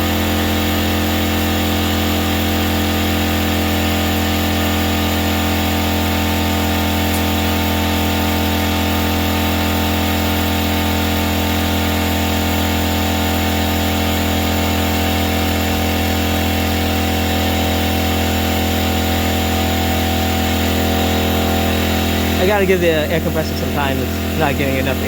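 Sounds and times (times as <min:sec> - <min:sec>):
air compressor humming: 0:00.0 - 0:25.0.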